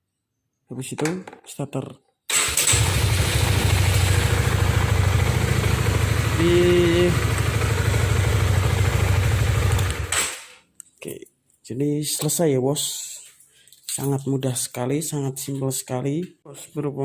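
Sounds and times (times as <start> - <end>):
motorcycle engine starting and idling: 2.3 - 10.6.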